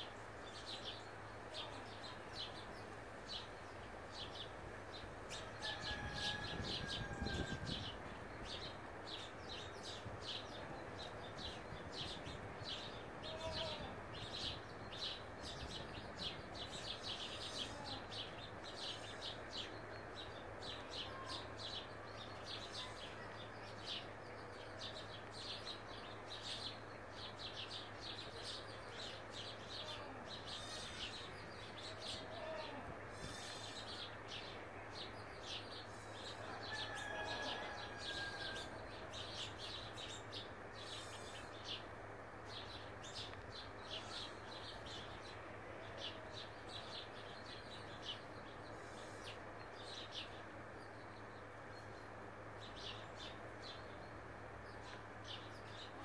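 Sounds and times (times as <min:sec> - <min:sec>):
small birds chirping: 0:00.0 - 0:56.0
lower bird calls: 0:29.0 - 0:34.5, 0:40.2 - 0:41.9.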